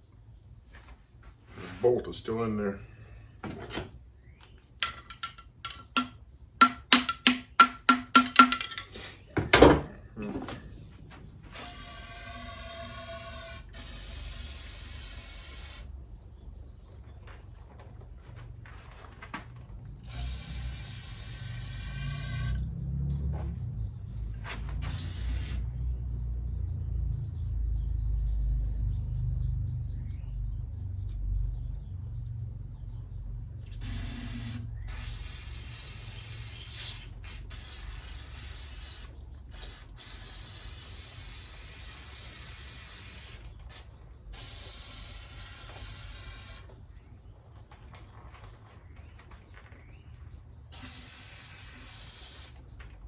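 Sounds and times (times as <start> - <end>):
sharp metal knocks on fork leg: 4.8 - 8.9
spray cleaner hissing: 13.4 - 15.9, 20.1 - 22.6, 24.8 - 25.6, 33.7 - 46.7, 50.7 - 52.6.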